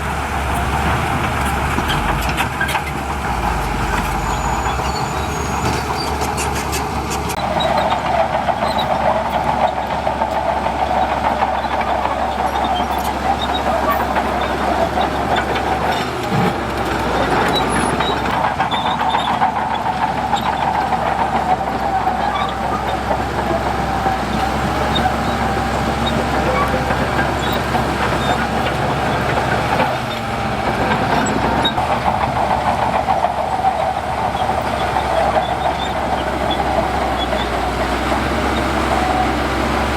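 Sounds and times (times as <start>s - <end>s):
diesel engine under load: 0.0s - 39.9s
metal tracks clattering: 0.0s - 39.9s.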